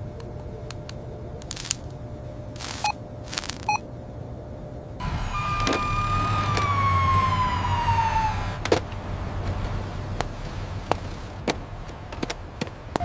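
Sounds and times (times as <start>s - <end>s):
low engine rumble: 0.0s - 13.0s
short bursts of noise: 2.6s - 3.8s
emergency vehicle siren: 5.0s - 10.8s.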